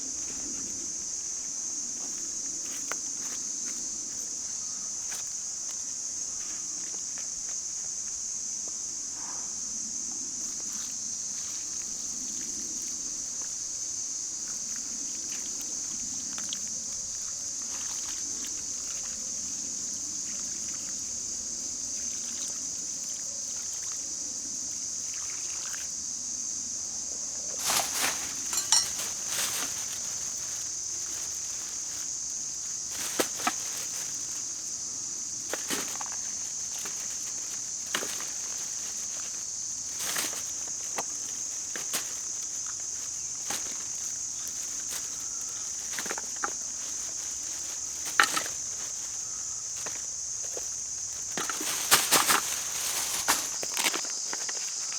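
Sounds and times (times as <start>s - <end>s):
high-pitched insect chorus: 0.0s - 54.9s
short knocks and rustles: 27.6s - 32.0s, 35.5s - 54.9s.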